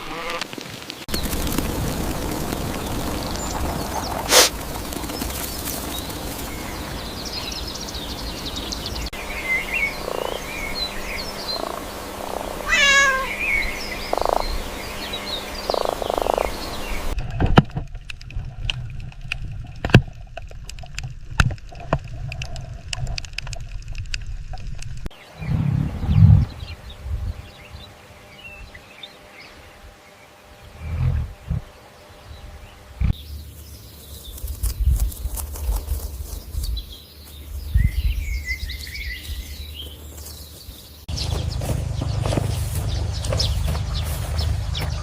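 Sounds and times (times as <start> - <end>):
animal calls and chirps: 5.2 - 17.2
low rumble: 23.7 - 27.9, 30.6 - 33.5, 41.1 - 45.0.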